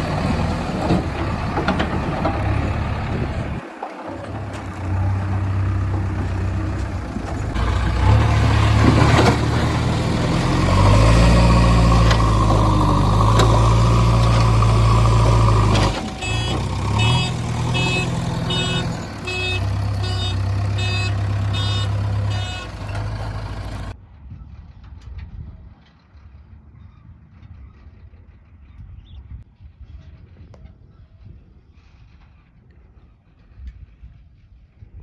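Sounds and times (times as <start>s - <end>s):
diesel engine revving: 0.0s - 24.0s
reversing alarm beeping: 15.3s - 23.8s.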